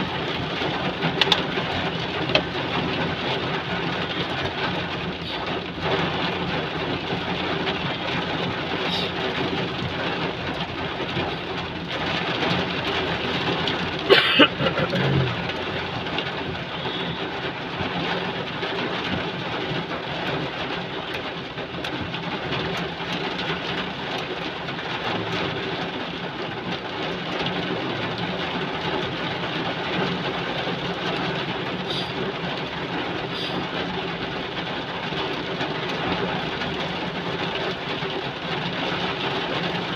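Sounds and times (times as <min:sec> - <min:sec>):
heavy rain hissing: 0:08.6 - 0:09.4, 0:14.0 - 0:18.4, 0:31.7 - 0:33.9.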